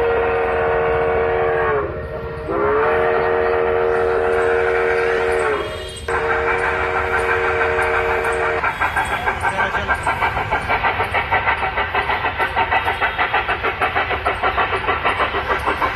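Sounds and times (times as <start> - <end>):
steam locomotive whistle: 0.0 - 9.3
steam locomotive chuffing: 0.0 - 15.9.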